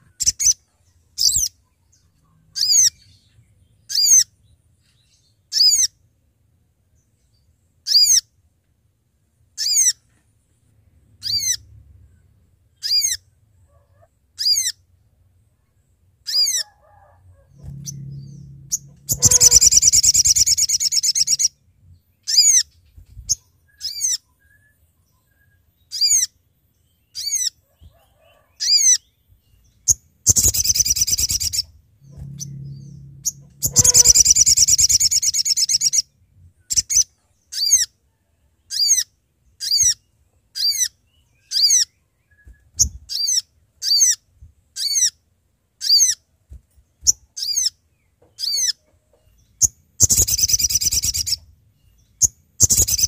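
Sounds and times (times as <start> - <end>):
bird chattering song: 17.5 - 24.3, 28.6 - 37.9, 48.4 - 53.0
songbird whistled calls: 30.3 - 36.1, 50.0 - 51.5.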